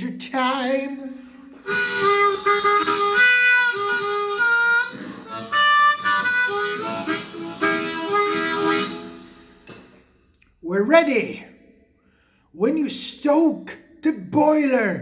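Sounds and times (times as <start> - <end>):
blues harmonica playing: 1.6 - 9.6.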